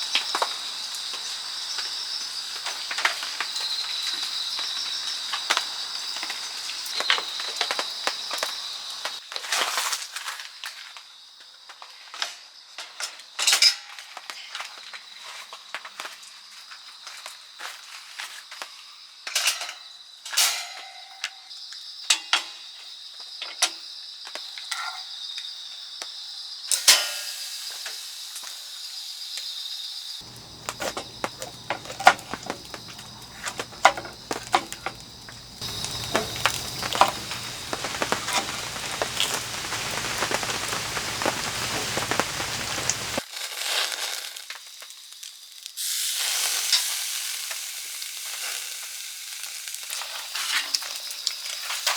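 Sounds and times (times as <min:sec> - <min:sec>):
sharp clicks and knocks: 0:30.2 - 0:39.4
steak sizzling over charcoal: 0:30.2 - 0:51.9.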